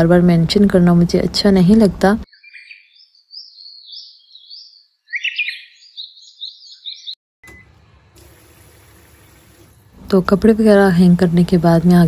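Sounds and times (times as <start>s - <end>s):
small birds chirping: 2.3s - 7.2s.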